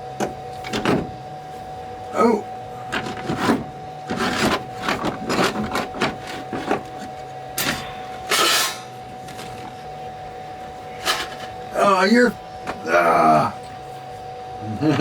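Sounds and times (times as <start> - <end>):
faint steady whine: 0.0 - 15.0
loud rasping scrapes: 2.9 - 7.0
scrapes and knocks on metal: 2.9 - 8.9, 11.0 - 11.6.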